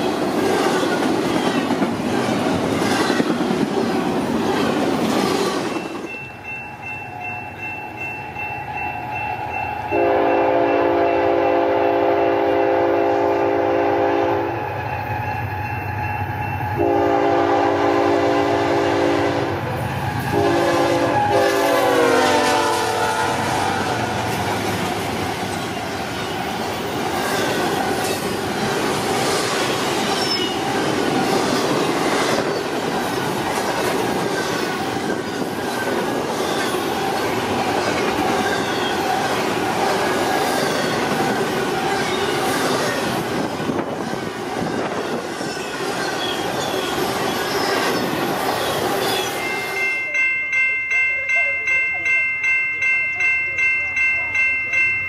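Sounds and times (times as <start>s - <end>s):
locomotive air horn blasts: 9.9s - 14.6s, 16.8s - 19.7s, 20.3s - 24.1s
wheel squeal: 44.8s - 49.6s.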